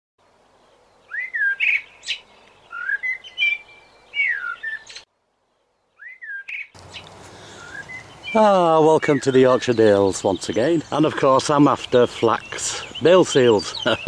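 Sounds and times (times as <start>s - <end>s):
birds singing: 0.4s - 14.0s.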